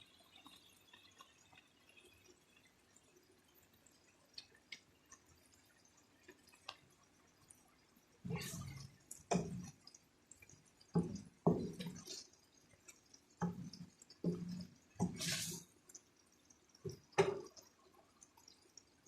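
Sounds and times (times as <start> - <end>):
wet stirring in a pan: 8.2 - 19.0.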